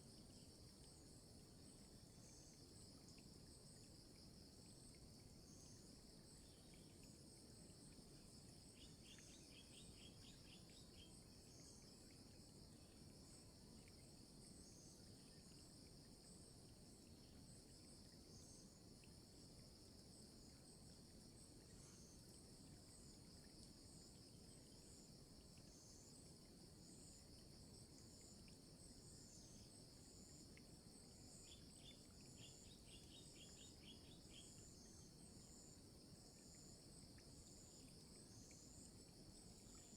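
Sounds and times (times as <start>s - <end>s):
insects trilling: 8.2s - 19.2s, 28.2s - 39.9s.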